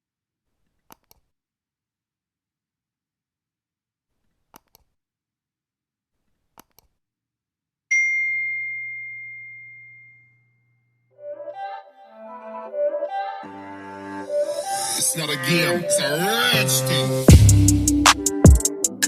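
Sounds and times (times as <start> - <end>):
bright bell-like ding: 7.9 - 10.6.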